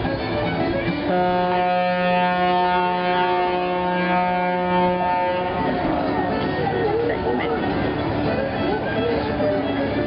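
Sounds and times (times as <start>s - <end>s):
boat horn blast: 1.0s - 6.0s.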